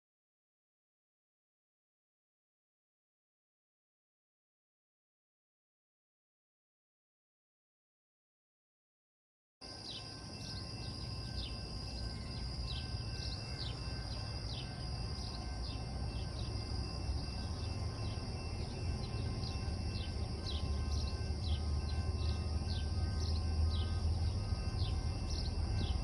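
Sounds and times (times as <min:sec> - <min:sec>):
high insect drone: 0:09.7 - 0:26.0.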